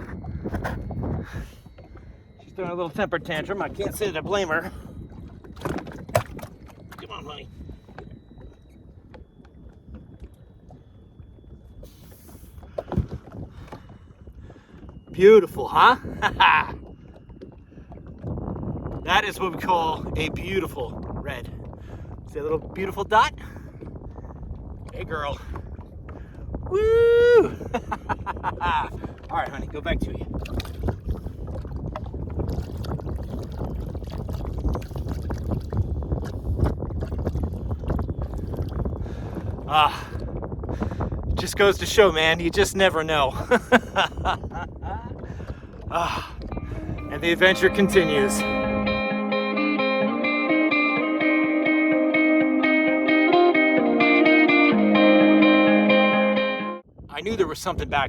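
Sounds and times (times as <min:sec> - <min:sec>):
wind buffeting microphone: 0:00.0 - 0:54.3, 0:56.8 - 0:58.0
water sounds: 0:00.0 - 0:56.2
fish thrashing thumps: 0:05.5 - 0:07.0.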